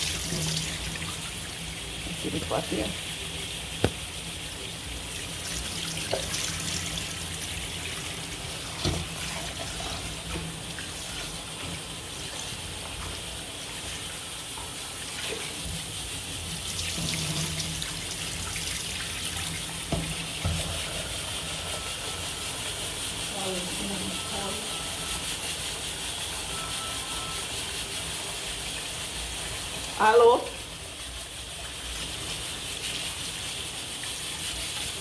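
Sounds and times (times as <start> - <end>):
tap water running into sink: 0.0 - 3.1, 3.7 - 22.8.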